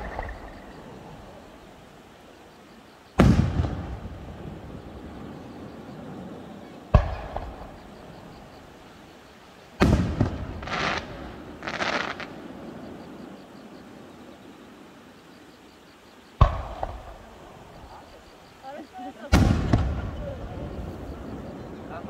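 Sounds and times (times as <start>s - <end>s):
fireworks booming: 0.0s - 1.5s, 3.2s - 8.7s, 9.8s - 13.2s, 16.4s - 18.4s, 19.2s - 22.0s.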